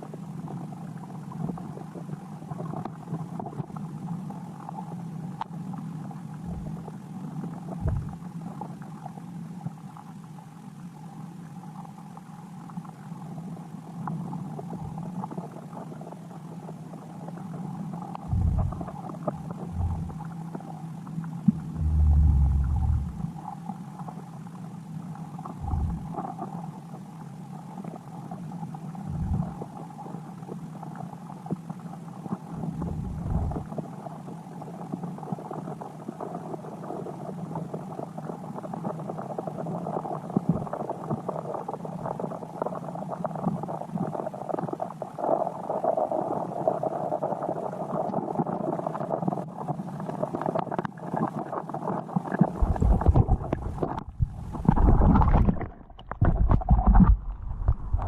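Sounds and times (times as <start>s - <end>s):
muffled water noise: 0.0s - 58.0s
low thumps: 6.5s - 6.8s, 7.8s - 8.1s, 18.3s - 18.9s, 19.6s - 20.2s, 21.5s - 23.3s, 25.6s - 26.1s, 52.6s - 58.0s.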